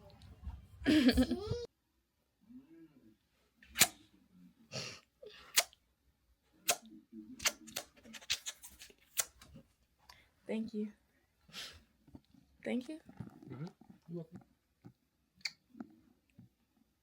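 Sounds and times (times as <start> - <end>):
soft low voice sounds: 2.4 - 3.2
short sharp clicks and smacks: 6.7 - 9.5.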